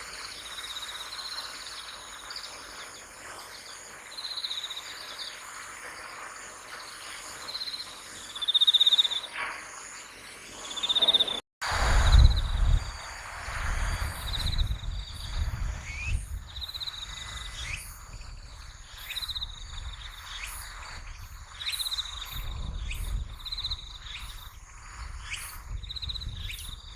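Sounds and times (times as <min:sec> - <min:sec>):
crickets chirping: 0:00.0 - 0:26.9
loud low rumble: 0:11.6 - 0:15.9.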